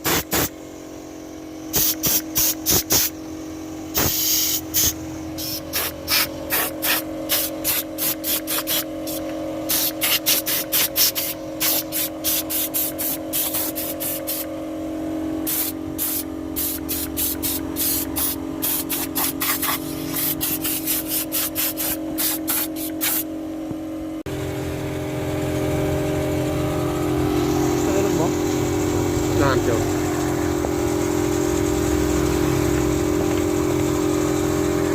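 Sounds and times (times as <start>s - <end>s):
short spray bursts: 0.0s - 0.5s, 1.7s - 3.2s, 3.9s - 14.5s, 15.4s - 23.3s
steady motor hum: 0.0s - 34.9s.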